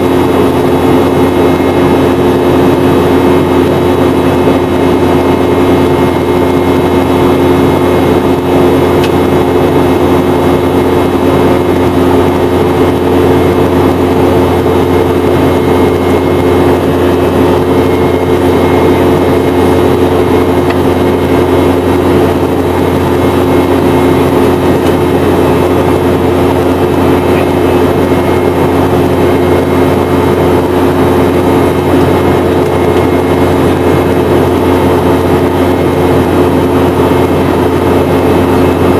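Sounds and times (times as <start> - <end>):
airflow rush: 0.0 - 38.9
jet engine drone in cabin: 0.0 - 38.9
steady humming tones: 0.0 - 38.9.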